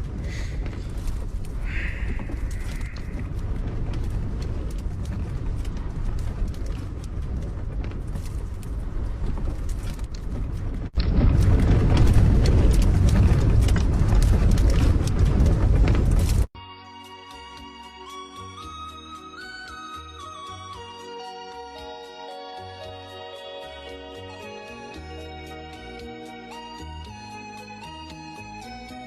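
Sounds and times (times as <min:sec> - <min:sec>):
strong wind roaring: 0:00.0 - 0:16.5.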